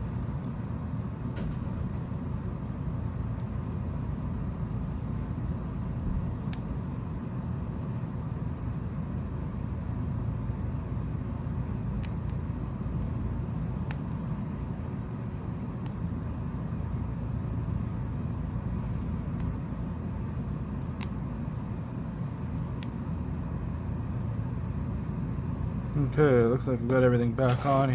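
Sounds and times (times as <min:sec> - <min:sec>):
low background rumble: 0:00.0 - 0:27.9
light clicks of small parts: 0:13.8 - 0:14.2, 0:19.3 - 0:19.6, 0:20.8 - 0:21.2.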